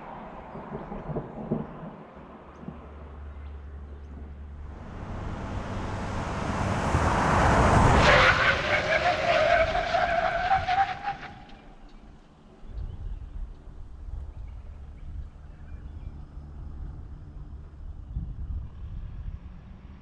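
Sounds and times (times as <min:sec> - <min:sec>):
diesel truck accelerating past: 0:04.5 - 0:11.4
rising whine: 0:04.6 - 0:10.0.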